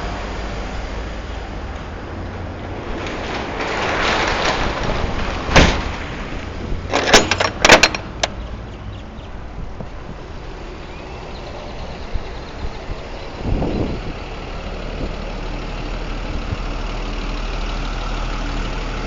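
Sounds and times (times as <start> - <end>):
roll-up door rolling down: 2.1 - 8.5
metal door banging: 4.2 - 8.5
sharp metal clanks: 6.9 - 8.4.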